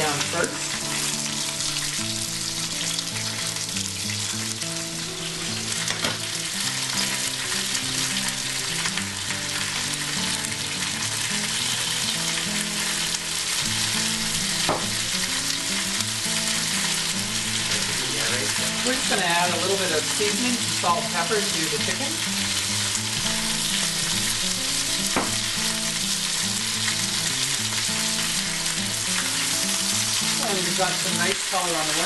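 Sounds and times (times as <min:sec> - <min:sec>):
chicken sizzling in frying pan: 0:00.0 - 0:32.0.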